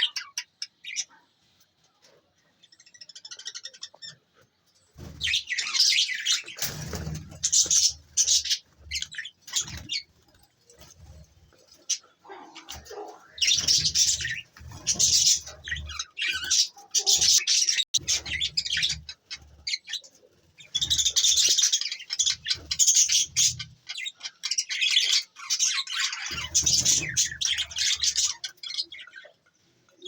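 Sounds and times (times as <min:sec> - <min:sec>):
budgerigars chattering: 0:11.9 - 0:20.0.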